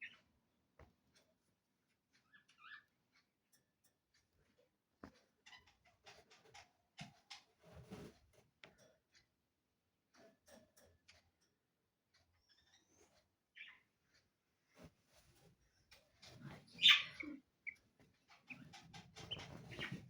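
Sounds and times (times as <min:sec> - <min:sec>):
budgies ticking and tapping: 0:00.0 - 0:01.3, 0:02.2 - 0:04.4, 0:05.0 - 0:08.1, 0:12.2 - 0:14.4, 0:15.9 - 0:20.0.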